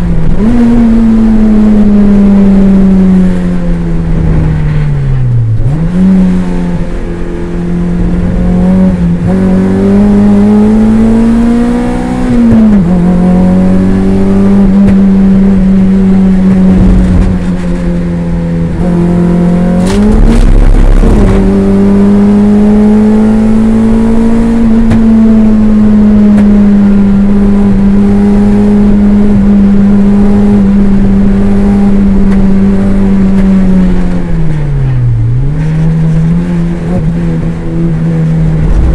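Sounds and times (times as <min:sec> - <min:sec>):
race car engine at high revs: 0:00.0 - 0:38.9.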